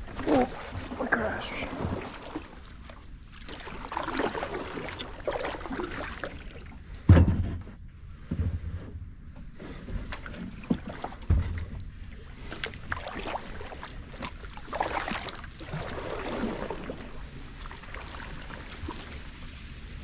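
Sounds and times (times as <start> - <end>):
swishing splash: 0.0 - 6.7, 12.6 - 20.0
paddle splashing water: 0.0 - 7.1, 8.1 - 20.0
heavy thump: 7.0 - 8.6
knocks against kayak hull: 7.1 - 8.6.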